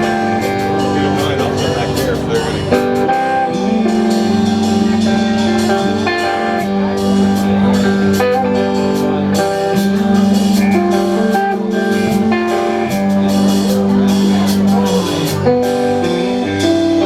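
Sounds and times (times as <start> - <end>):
electric guitar playing: 0.0 - 17.0
steady drum beat: 0.0 - 17.0.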